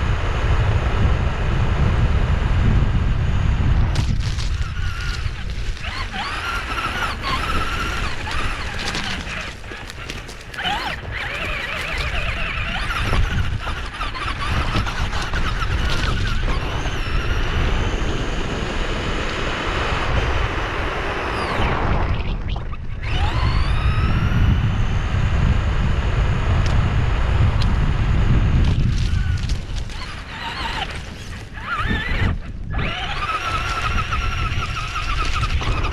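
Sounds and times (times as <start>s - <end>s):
rc car motor whine: 0.0s - 35.9s.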